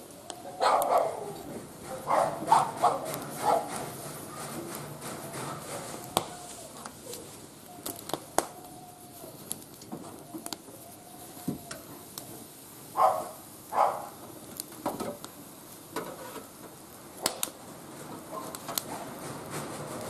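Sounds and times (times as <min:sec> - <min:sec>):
wood fire crackling: 0:00.0 - 0:20.0
loud scraping noises: 0:01.6 - 0:06.8, 0:16.1 - 0:16.5, 0:18.9 - 0:20.0.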